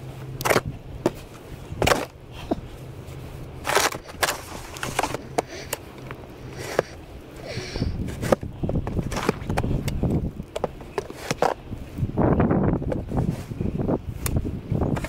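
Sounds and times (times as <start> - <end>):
snow shovel scraping snow: 0.5 - 5.7, 6.4 - 8.4, 11.0 - 11.6.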